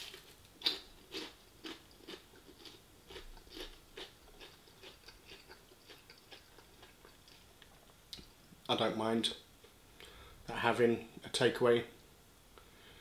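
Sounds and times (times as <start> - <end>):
crunchy chewing: 0.0 - 7.8.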